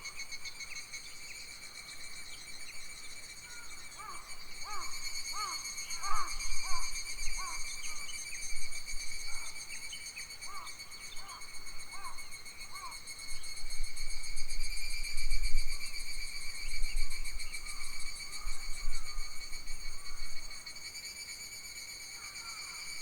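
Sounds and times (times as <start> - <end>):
wind rumble on microphone: 13.6 - 20.5.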